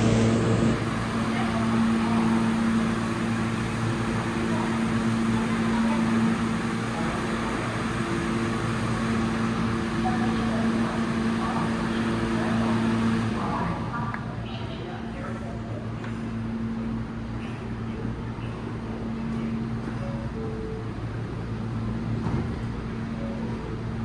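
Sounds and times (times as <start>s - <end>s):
low electrical hum: 0.0s - 0.8s.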